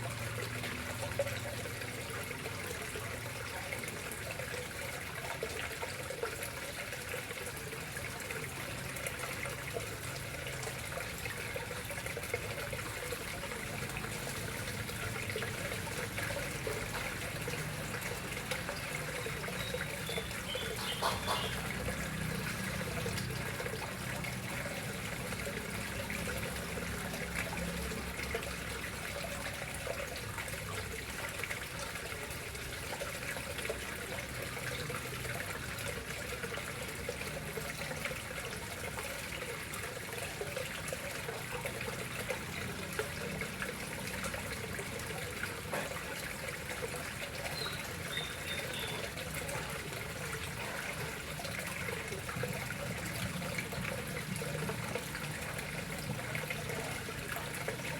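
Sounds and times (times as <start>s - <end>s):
water trickling into pond: 0.0s - 57.9s.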